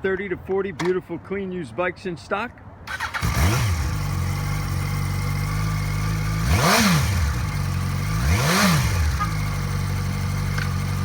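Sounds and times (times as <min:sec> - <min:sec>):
motorcycle engine idling and revving: 0:02.9 - 0:11.0.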